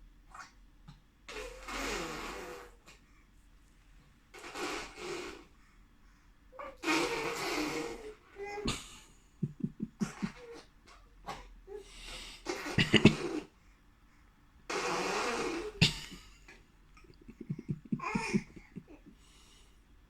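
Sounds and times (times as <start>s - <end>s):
baby blowing raspberries: 1.3s - 3.0s, 4.4s - 5.5s, 6.8s - 8.8s, 14.7s - 16.3s, 17.0s - 18.9s.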